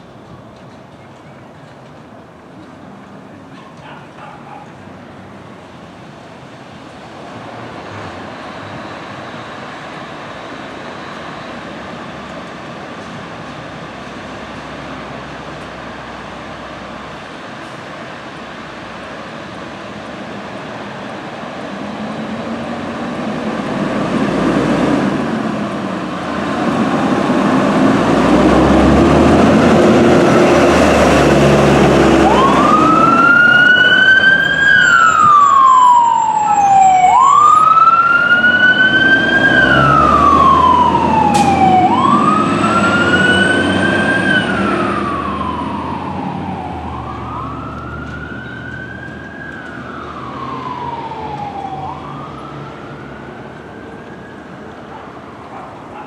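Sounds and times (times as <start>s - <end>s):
truck passing rush: 2.8s - 56.0s
fire engine siren wailing: 6.8s - 56.0s.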